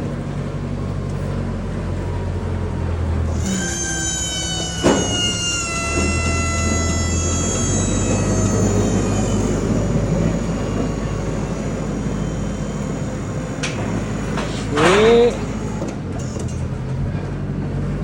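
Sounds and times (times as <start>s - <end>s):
high whine sliding down in pitch: 3.2s - 15.9s
vehicle engine running: 5.6s - 18.0s.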